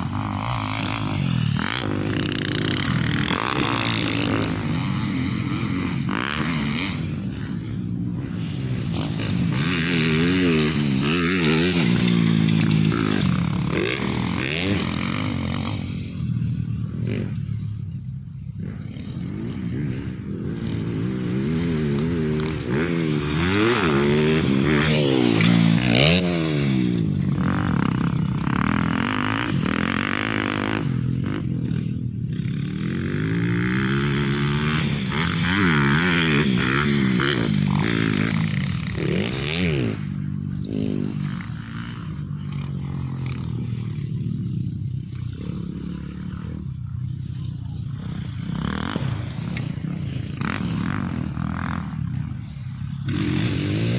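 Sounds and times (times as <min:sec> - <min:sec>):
motorcycle engine revving: 0:00.0 - 0:53.9
rattling and scraping: 0:10.6 - 0:19.2.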